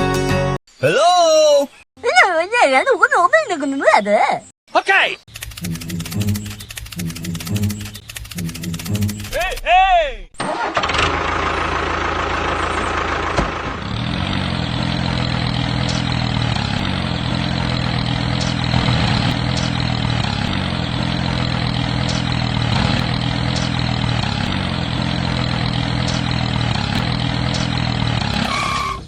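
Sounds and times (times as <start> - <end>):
engine idling: 5.3 - 9.6, 10.4 - 29.0.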